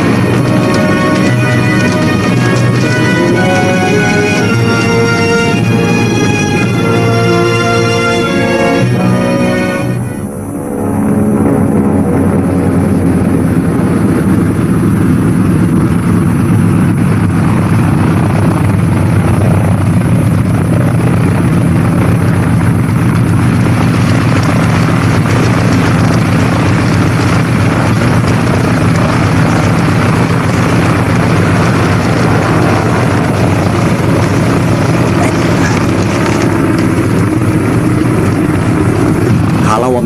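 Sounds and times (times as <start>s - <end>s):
engine drone: 0.0s - 40.0s.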